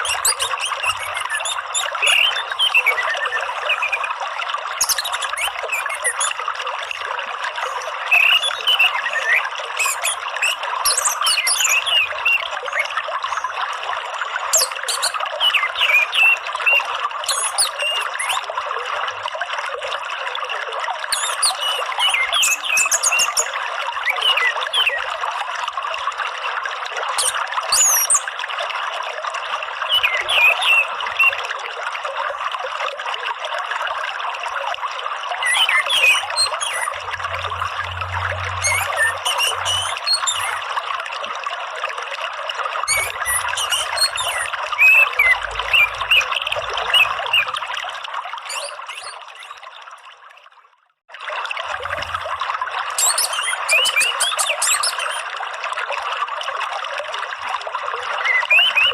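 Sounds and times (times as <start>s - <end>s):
high bird chirps: 0.0s - 4.1s, 4.8s - 6.4s, 7.6s - 13.6s, 14.6s - 18.4s, 21.1s - 23.5s, 29.9s - 31.4s, 35.4s - 40.7s, 42.9s - 47.6s, 48.4s - 49.6s, 53.0s - 55.2s, 58.3s - 58.9s
water trickling: 0.0s - 58.9s.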